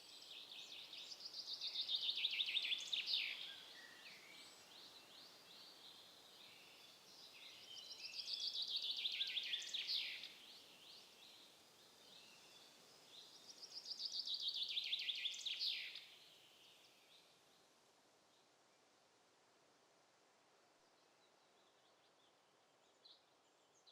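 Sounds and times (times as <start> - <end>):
songbird singing: 0.0 - 17.7.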